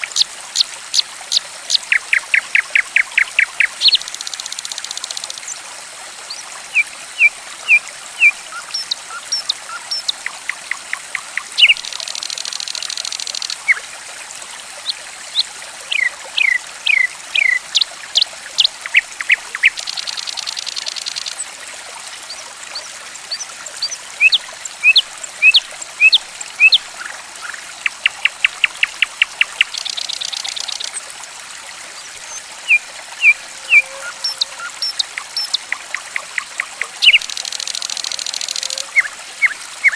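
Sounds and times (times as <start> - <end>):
gently trickling water: 0.0 - 39.9
songbird calls: 0.9 - 5.6, 6.3 - 13.8, 14.8 - 21.4, 22.7 - 31.0, 32.2 - 39.9
buzzy bird trill: 32.7 - 39.1.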